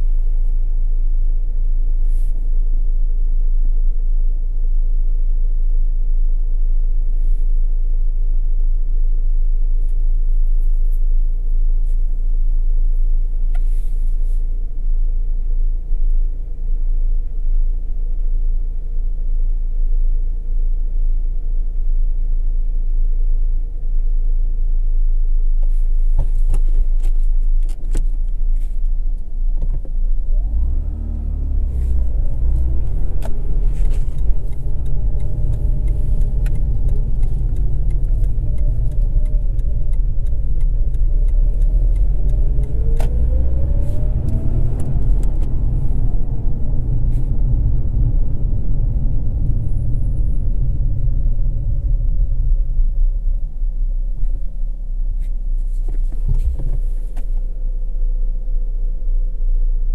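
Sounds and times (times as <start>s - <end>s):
road rumble: 0.0s - 59.9s
rotary car engine idling and accelerating: 0.0s - 59.9s
sharp clicks: 31.9s - 45.6s.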